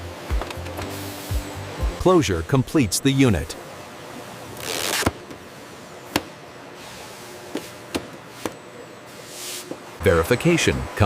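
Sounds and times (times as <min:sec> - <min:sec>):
machinery hiss: 0:00.8 - 0:01.7.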